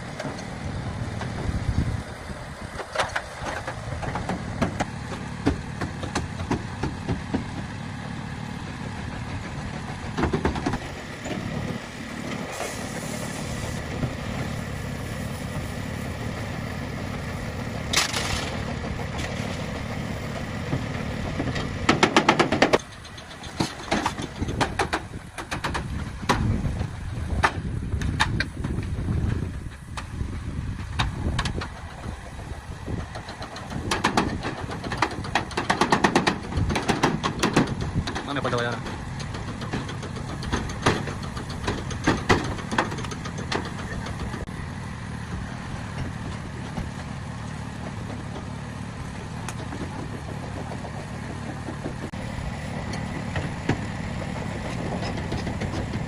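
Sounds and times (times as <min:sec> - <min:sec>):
vehicle engine running: 0:00.0 - 0:56.0
sharp knocks and clatters: 0:02.8 - 0:07.8, 0:09.2 - 0:11.8, 0:17.9 - 0:30.1, 0:30.8 - 0:44.5, 0:45.9 - 0:52.2, 0:52.9 - 0:56.0.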